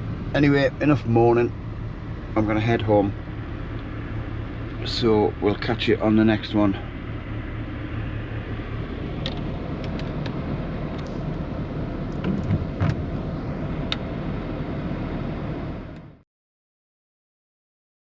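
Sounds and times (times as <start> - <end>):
rain on a vehicle roof: 12.0 - 13.3.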